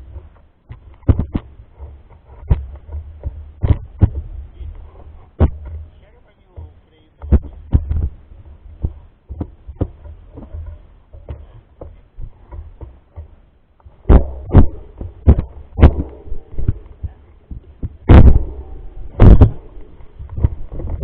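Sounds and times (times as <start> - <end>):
bike knocks and thumps: 0.0 - 21.0
low rumble: 13.9 - 21.0.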